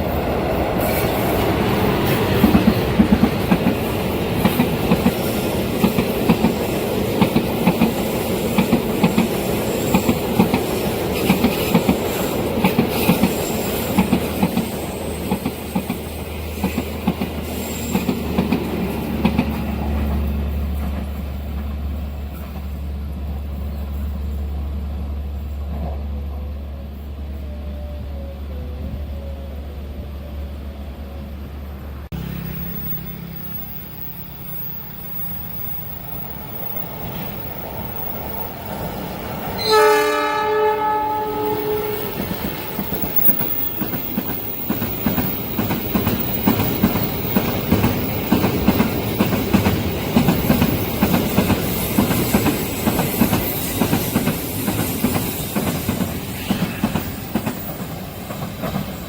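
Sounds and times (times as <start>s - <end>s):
train rumble: 0.0s - 59.0s
train wheels clattering over rail joints: 0.8s - 22.8s, 42.1s - 59.0s
locomotive horn: 39.5s - 43.4s.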